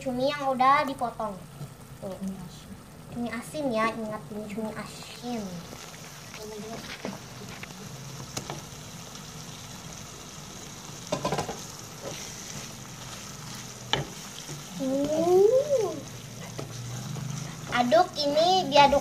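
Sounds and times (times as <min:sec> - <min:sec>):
food sizzling in a wok: 0:00.0 - 0:19.0
spatula stirring: 0:11.1 - 0:18.9.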